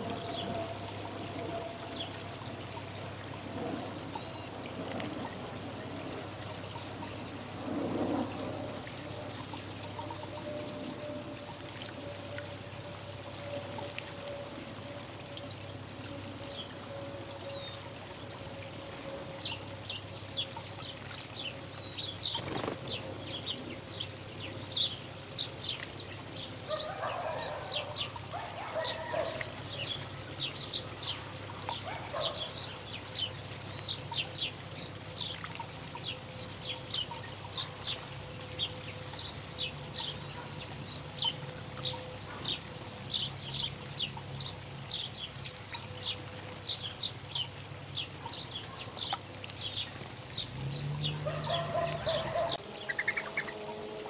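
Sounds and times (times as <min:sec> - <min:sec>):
small birds chirping rapidly: 0:46.4 - 0:53.5.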